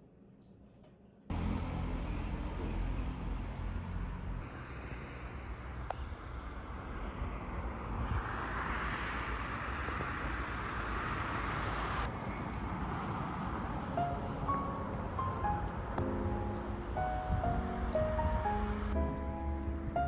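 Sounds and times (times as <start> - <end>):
vehicle passing by: 1.3 - 15.7
road traffic rumble: 1.3 - 20.0.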